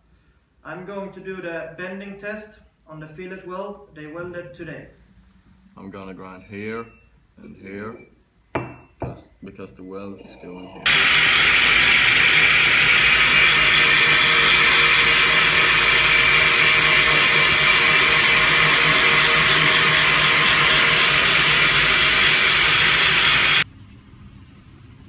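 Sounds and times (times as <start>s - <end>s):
angle grinder grinding steel: 10.4s - 23.7s.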